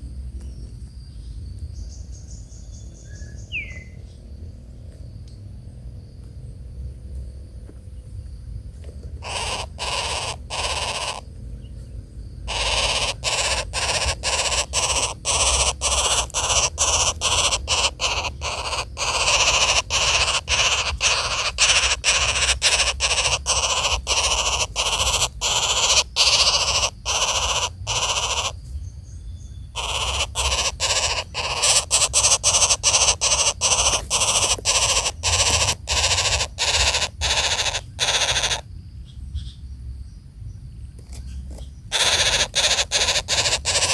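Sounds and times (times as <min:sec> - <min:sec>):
nestlings raspy begging calls: 0:09.2 - 0:11.3, 0:12.2 - 0:38.7, 0:41.5 - 0:43.9.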